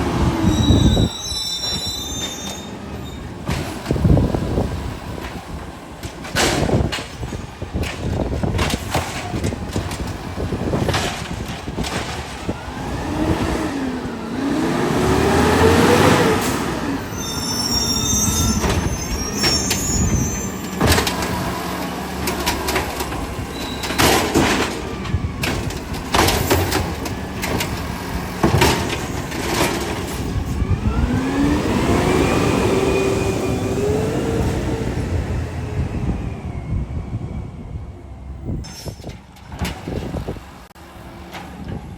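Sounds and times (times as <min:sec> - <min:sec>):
garbage truck engine revving: 0:00.0 - 0:41.9
high squeal: 0:00.3 - 0:03.4, 0:16.4 - 0:21.0, 0:23.4 - 0:24.0
metal clanks and knocks: 0:05.2 - 0:12.6, 0:18.4 - 0:30.7, 0:38.6 - 0:40.4.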